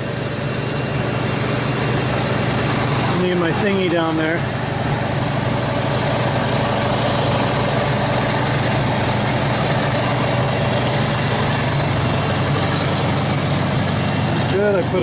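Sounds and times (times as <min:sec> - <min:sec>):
pickup engine idling: 0:00.0 - 0:15.0.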